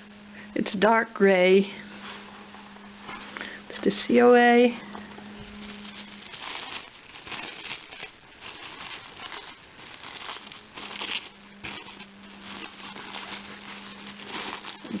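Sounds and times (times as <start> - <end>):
faint steady hum: 0.0 - 15.0
packaging rustling and crinkling: 5.3 - 15.0.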